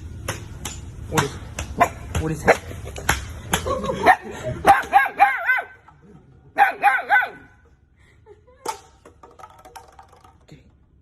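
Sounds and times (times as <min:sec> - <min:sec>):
dog yipping: 0:04.7 - 0:05.8, 0:06.6 - 0:07.6.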